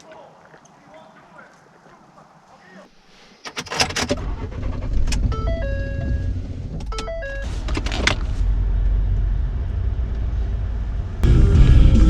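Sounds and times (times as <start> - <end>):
car engine rumble: 4.1 - 12.0.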